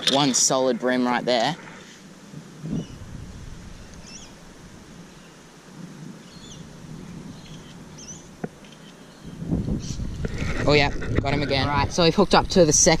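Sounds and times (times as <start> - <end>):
wind rumble on microphone: 0.9 - 8.6, 9.2 - 13.0
high bird chirps: 3.9 - 4.4, 6.2 - 6.7, 7.3 - 10.1.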